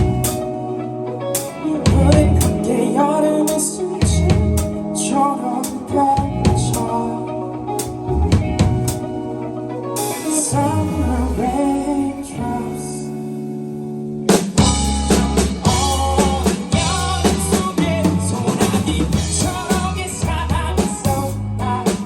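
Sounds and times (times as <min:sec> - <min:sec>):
drum kit: 0:00.0 - 0:02.8, 0:03.5 - 0:04.9, 0:05.6 - 0:07.0, 0:07.7 - 0:12.0, 0:14.3 - 0:22.0
person singing: 0:00.0 - 0:08.3, 0:09.5 - 0:13.4, 0:14.8 - 0:22.0
band playing a song: 0:00.0 - 0:22.0.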